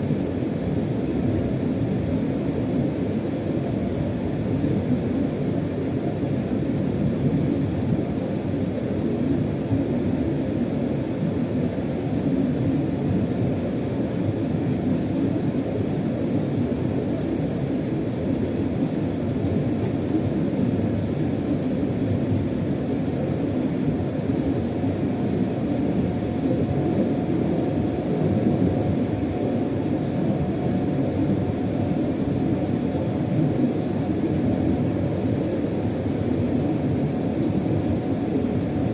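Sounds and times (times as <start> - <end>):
faint steady whine: 0.0 - 38.9.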